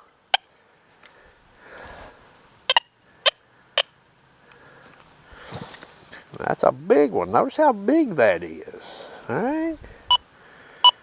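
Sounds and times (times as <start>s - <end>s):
metal detector chirps: 2.7s - 3.9s.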